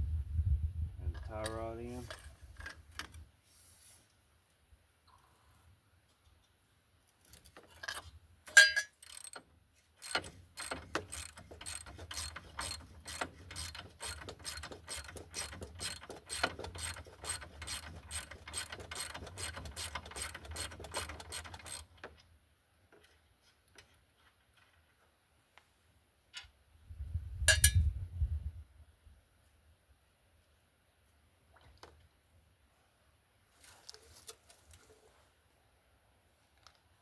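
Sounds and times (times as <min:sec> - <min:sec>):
metal tool clink: 0:07.8 - 0:09.4, 0:27.5 - 0:27.8
ratchet wrench clicking: 0:08.5 - 0:09.4, 0:10.0 - 0:22.0.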